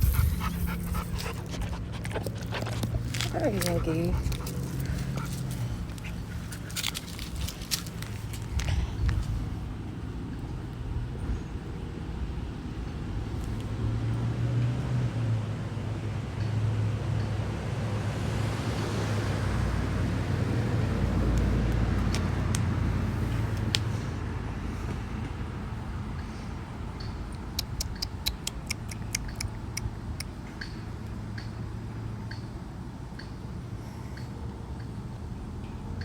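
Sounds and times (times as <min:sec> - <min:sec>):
vehicle passing by: 0:00.0 - 0:08.7, 0:12.4 - 0:26.9
low engine hum: 0:00.0 - 0:36.0
sharp clicks: 0:27.3 - 0:30.3.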